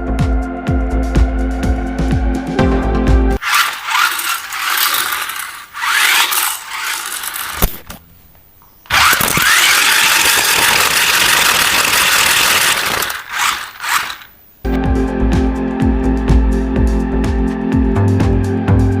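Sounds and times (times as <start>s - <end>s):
toy electric motor whirring: 3.4s - 7.9s, 8.9s - 14.4s.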